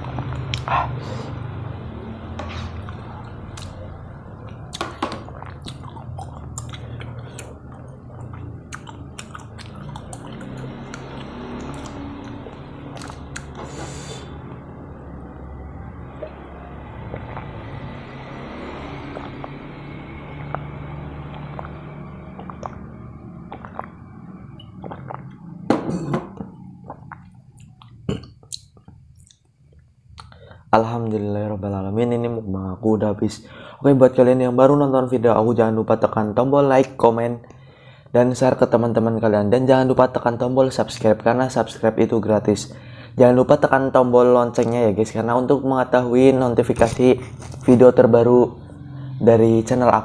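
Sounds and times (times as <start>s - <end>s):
steady low hum: 0.0s - 50.0s
wet chewing smacks: 4.7s - 13.6s, 20.4s - 25.5s
mouth clicks: 21.3s - 25.5s, 26.4s - 30.4s.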